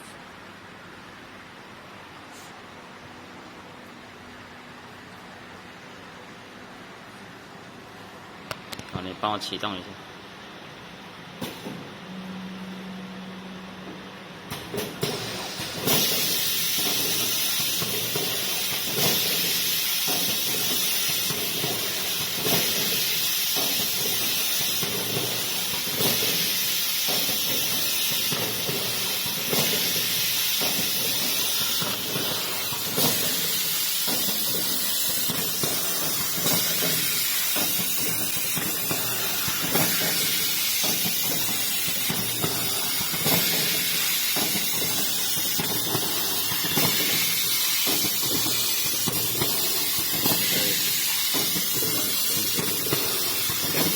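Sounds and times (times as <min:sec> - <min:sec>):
loud machine clunk: 0:14.5 - 0:53.9
machine mechanism clacking: 0:14.5 - 0:53.9
packaging machine running: 0:14.5 - 0:53.9.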